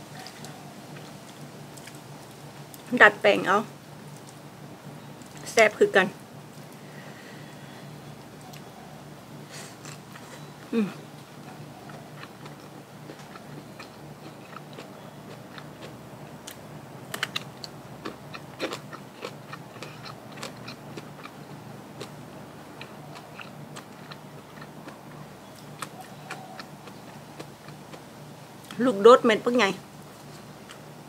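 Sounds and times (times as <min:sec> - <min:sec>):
faint steady hum: 0:00.0 - 0:31.0
person chewing food: 0:09.5 - 0:28.8.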